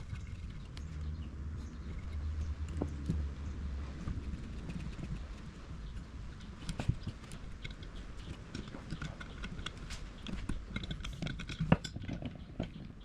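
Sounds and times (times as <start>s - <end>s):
small objects clicking and tapping: 6.5s - 13.0s.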